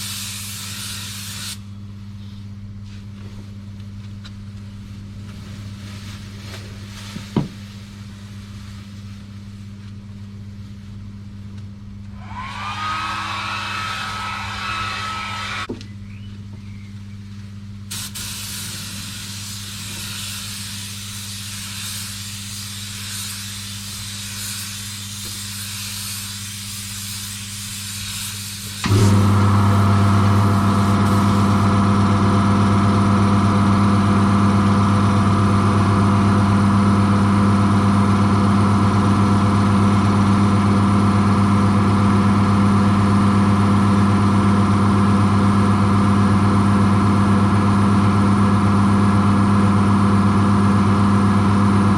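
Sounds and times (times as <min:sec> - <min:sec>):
hiss of air: 0:00.0 - 0:01.7, 0:12.2 - 0:15.4, 0:17.9 - 0:29.1, 0:30.0 - 0:31.7
low hum: 0:11.3 - 0:17.4.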